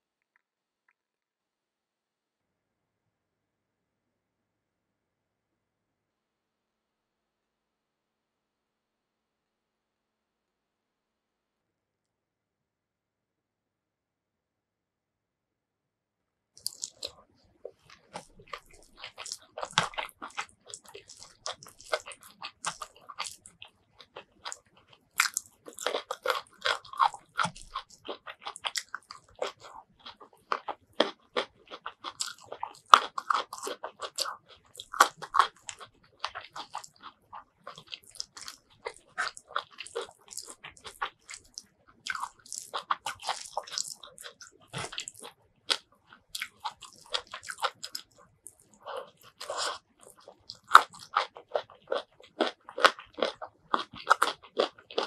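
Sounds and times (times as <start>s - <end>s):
person chewing wetly: 16.6s - 55.0s.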